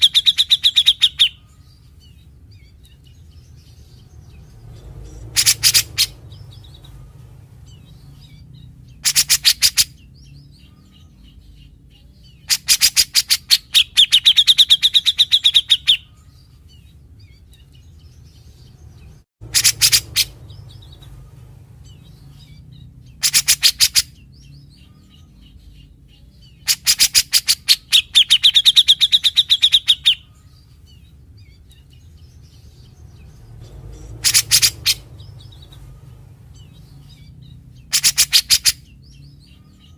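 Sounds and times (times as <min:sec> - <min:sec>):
bird singing rattling trills: 0:00.0 - 0:39.9
steady low hum: 0:19.4 - 0:23.2.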